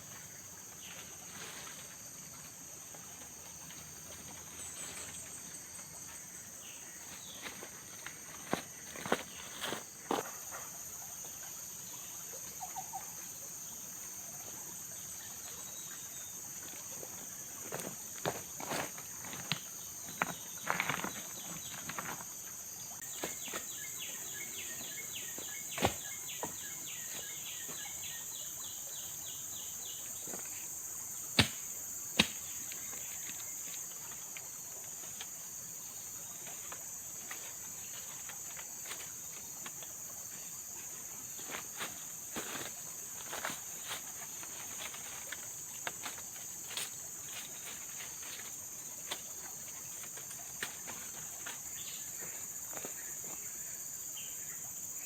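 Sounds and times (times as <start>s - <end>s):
insects shrilling: 16.8s - 53.4s.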